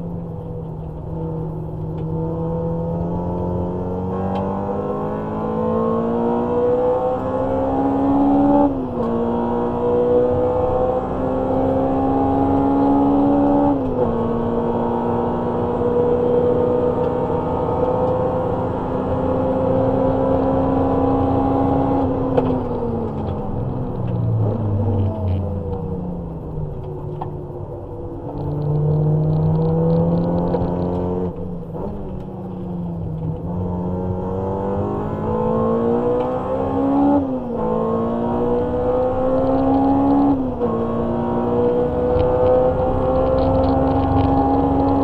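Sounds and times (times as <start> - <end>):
car engine accelerating: 0.0 - 45.0.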